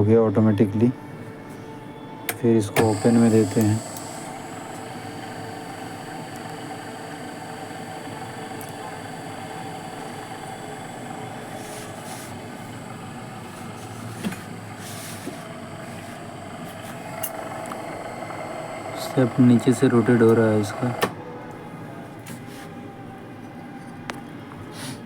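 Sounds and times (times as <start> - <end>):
valve actuator motor humming: 2.7 - 21.2.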